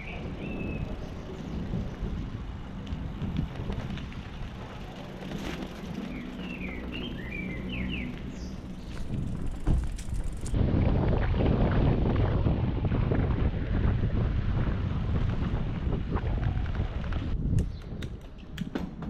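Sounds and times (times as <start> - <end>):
bicycle tyre rumble: 0.0 - 18.3
wind noise on microphone: 0.0 - 19.0
bird chirps: 6.1 - 9.1.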